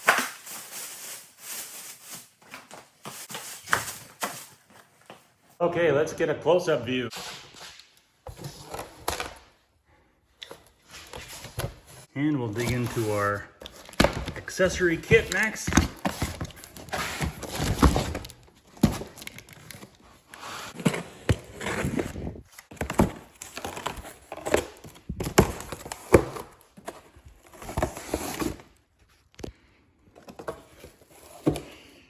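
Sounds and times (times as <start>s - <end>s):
packaging rustle: 0.0s - 5.0s.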